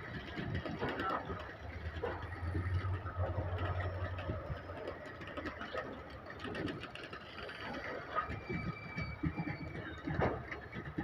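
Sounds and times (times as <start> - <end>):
train rumble: 0.0 - 11.0
wheels clattering on rails: 0.0 - 11.0.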